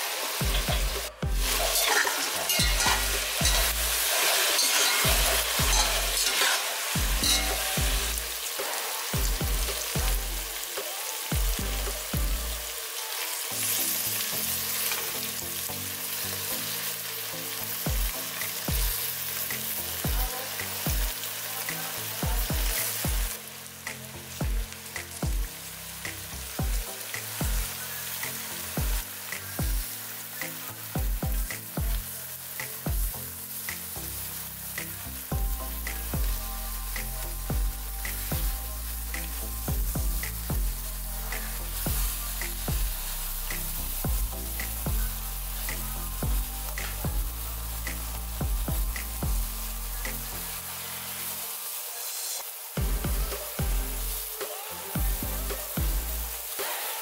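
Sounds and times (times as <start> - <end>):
vegetables sizzling in oil: 0.0 - 57.0
spatula stirring and scraping: 1.3 - 8.0.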